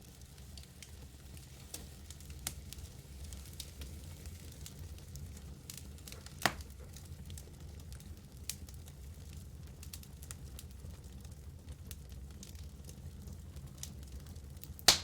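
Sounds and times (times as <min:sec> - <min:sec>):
low rumble of burning: 0:00.0 - 0:15.0
wood fire crackling and popping: 0:00.0 - 0:15.0.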